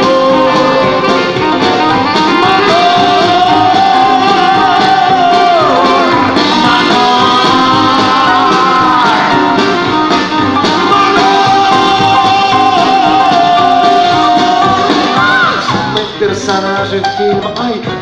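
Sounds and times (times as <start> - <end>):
lead melody bending in pitch: 0.0 - 17.6
live band playing: 0.0 - 18.0.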